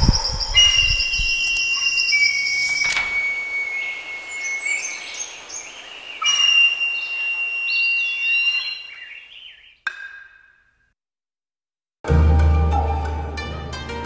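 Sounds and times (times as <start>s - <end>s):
bird whistling and chirping: 0.0s - 9.8s.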